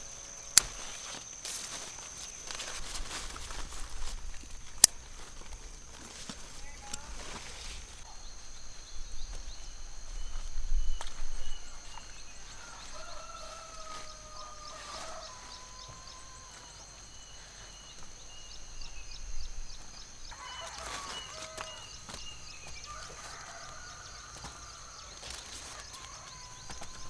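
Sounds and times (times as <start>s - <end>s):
high-pitched insect drone: 0.0s - 27.0s
rooster crowing: 11.5s - 17.5s, 20.2s - 27.0s.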